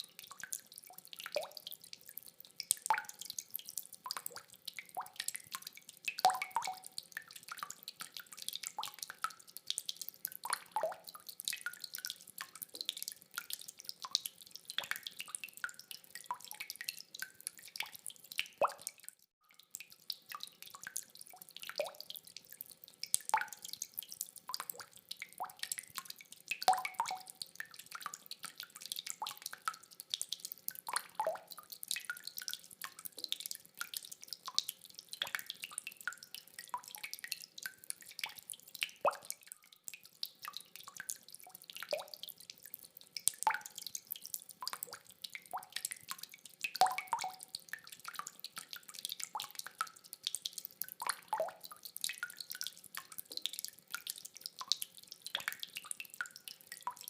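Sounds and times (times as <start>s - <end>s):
water drops dripping: 0.0s - 57.0s.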